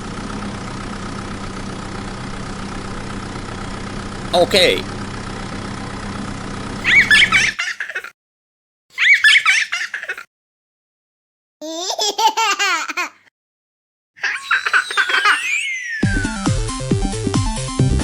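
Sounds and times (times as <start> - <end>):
engine-like hum: 0.0 - 7.6
bursts of laughter: 6.8 - 8.1, 14.2 - 15.6.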